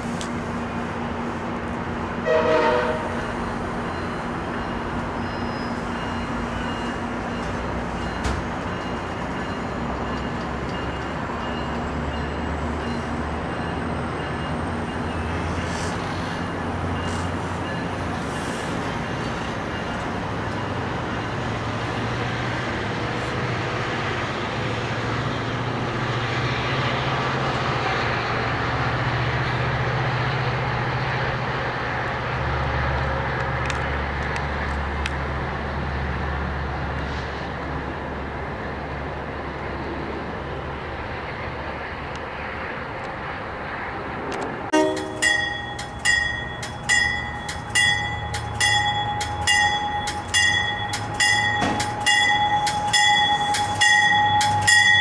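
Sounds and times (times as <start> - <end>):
diesel engine drone: 0.0 - 55.0
rail rumble: 0.0 - 55.0.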